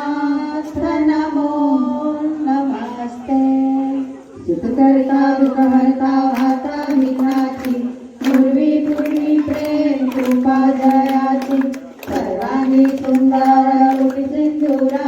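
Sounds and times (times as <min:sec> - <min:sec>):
children and women singing: 0:00.0 - 0:15.0
hand clapping: 0:05.4 - 0:15.0.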